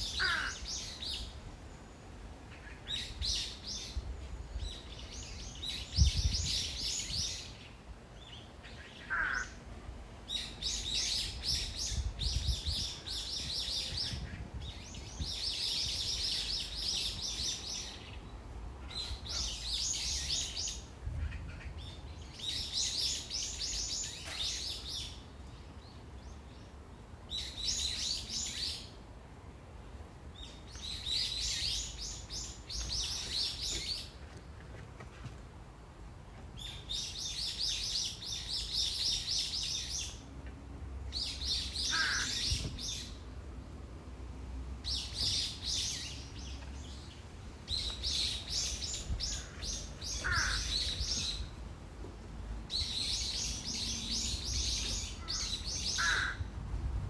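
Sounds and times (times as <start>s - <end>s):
songbird chirping: 21.7s - 29.0s, 29.9s - 35.2s, 36.3s - 43.7s, 44.4s - 56.4s.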